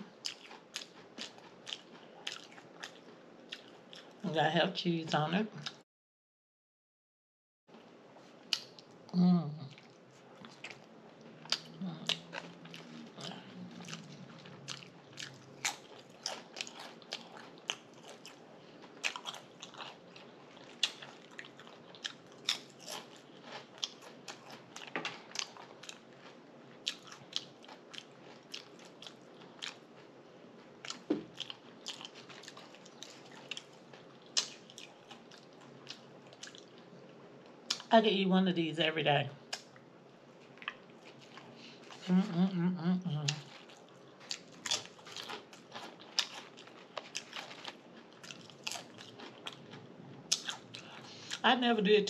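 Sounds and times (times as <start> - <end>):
person biting and chewing: 10.4 - 26.0, 43.3 - 51.4.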